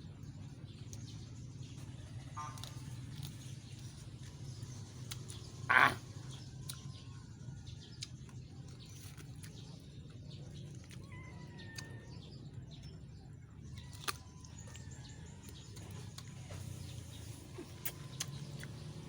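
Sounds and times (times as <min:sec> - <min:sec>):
chewing raw vegetables: 0:00.4 - 0:19.0
faint thin calls: 0:05.7 - 0:06.0.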